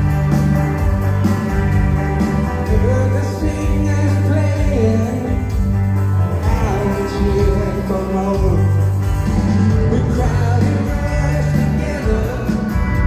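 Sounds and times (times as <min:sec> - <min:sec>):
bass line: 0:00.0 - 0:13.0
guitar: 0:00.0 - 0:13.0
person singing: 0:02.6 - 0:05.6, 0:06.4 - 0:08.9, 0:09.7 - 0:13.0.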